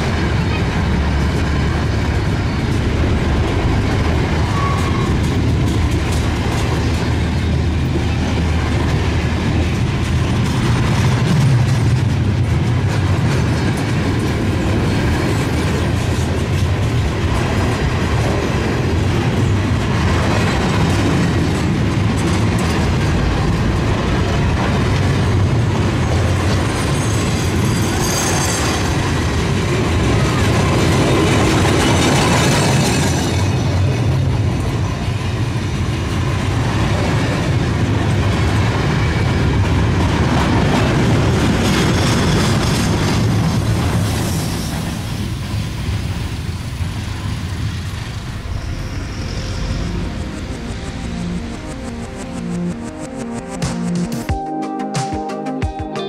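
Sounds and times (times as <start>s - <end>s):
freight train wheels rumbling: 0.0s - 54.3s
high wheel squeal: 4.4s - 5.7s, 26.7s - 29.3s, 48.2s - 51.2s.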